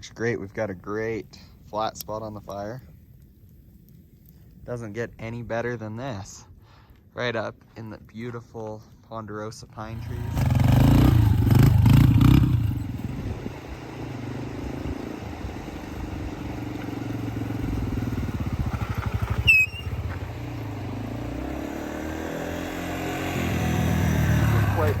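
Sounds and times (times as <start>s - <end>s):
dirt bike engine running: 9.9s - 25.0s
short high chirp: 19.4s - 20.0s.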